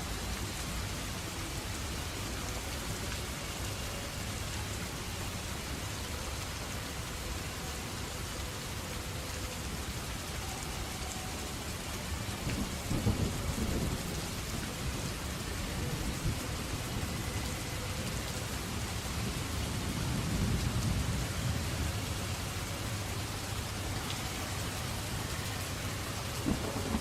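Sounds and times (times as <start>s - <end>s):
steady rain falling: 0.0s - 27.0s
low rolls of thunder: 12.1s - 27.0s.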